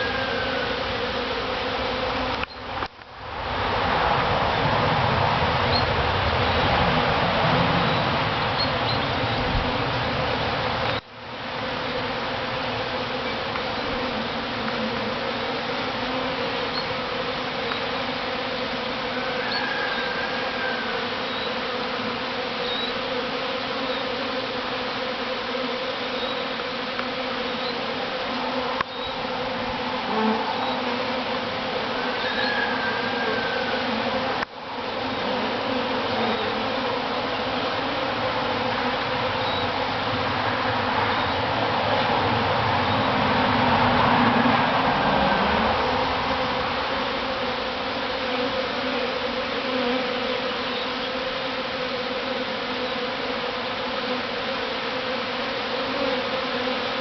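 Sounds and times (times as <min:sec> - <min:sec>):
bee swarm humming: 0:00.0 - 0:57.0.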